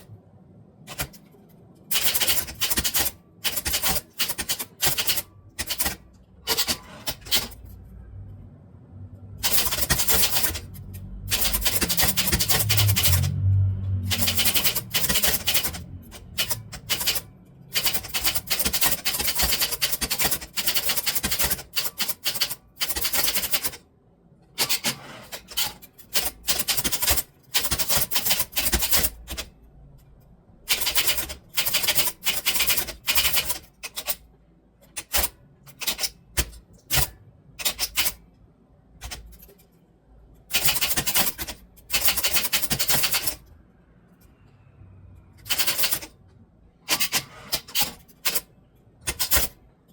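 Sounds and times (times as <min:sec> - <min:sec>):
typewriter key strikes: 0:01.9 - 0:07.6, 0:11.3 - 0:13.3, 0:14.1 - 0:23.7.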